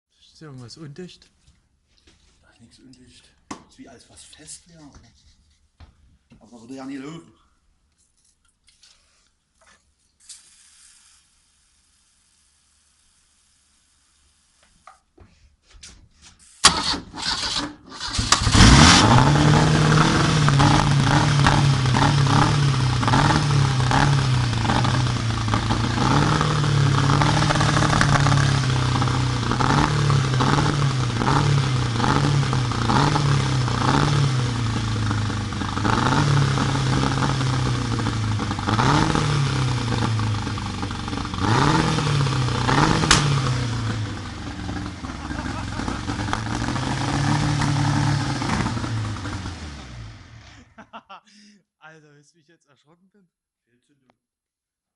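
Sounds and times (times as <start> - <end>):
starter motor cranking: 16.6 - 19.3
boat engine idling and misfiring: 42.5 - 50.2.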